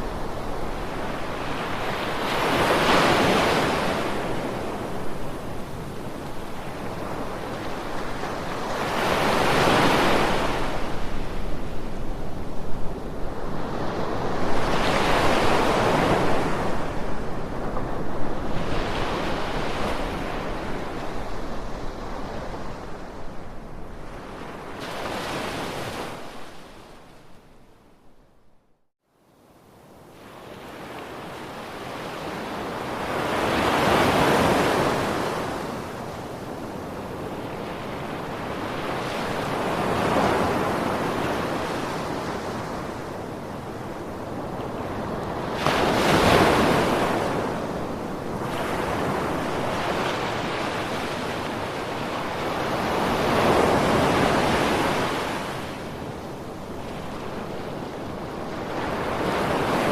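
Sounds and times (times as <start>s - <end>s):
ocean waves breaking: 44.4s - 56.1s.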